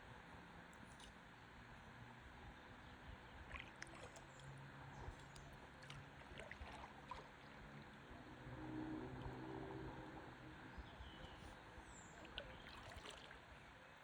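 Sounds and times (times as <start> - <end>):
water lapping against paddleboard: 3.5 - 7.8, 12.2 - 13.5.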